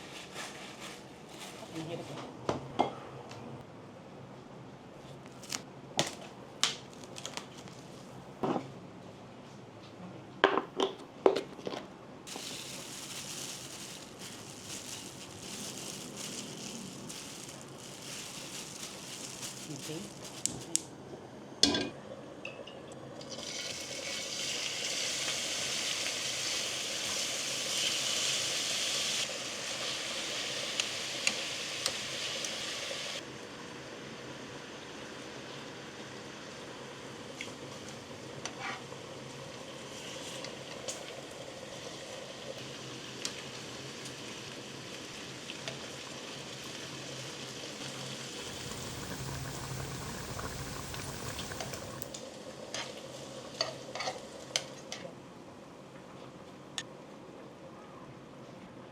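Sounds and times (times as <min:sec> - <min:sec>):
pork sizzling in a pan: 0:12.3 - 0:20.5, 0:23.3 - 0:33.2, 0:39.7 - 0:54.5.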